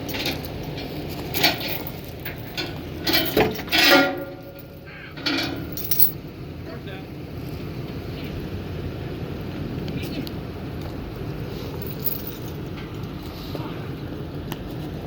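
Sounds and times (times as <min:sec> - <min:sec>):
metal clanking and scraping: 0:00.0 - 0:06.2
steady low rumble: 0:00.0 - 0:15.0.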